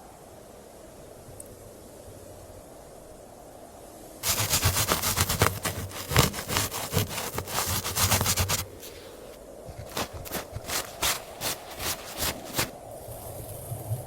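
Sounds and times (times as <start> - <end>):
hand saw cutting wood: 4.2 - 12.7.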